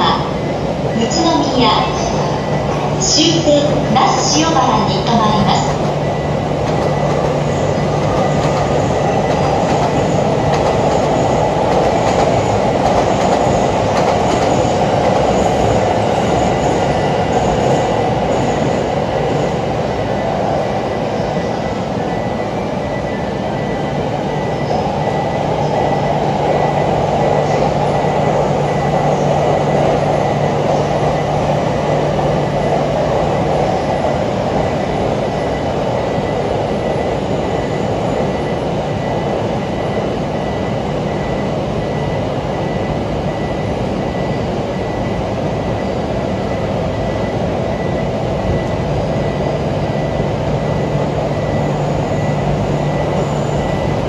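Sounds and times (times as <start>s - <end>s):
electric train rumbling: 0.0s - 54.0s.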